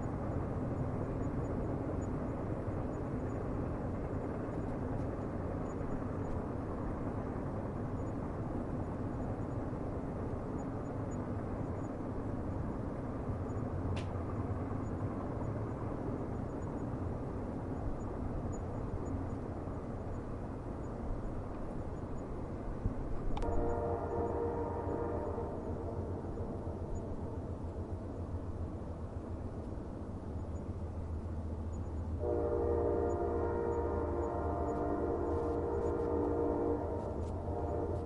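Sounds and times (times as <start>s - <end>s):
distant train rumble: 0.0s - 38.0s
faint click: 13.9s - 14.2s, 23.3s - 23.6s.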